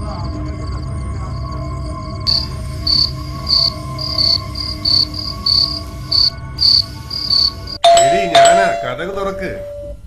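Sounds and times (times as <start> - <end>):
crickets chirping: 0.0 - 10.0
low steady hum: 2.3 - 10.0.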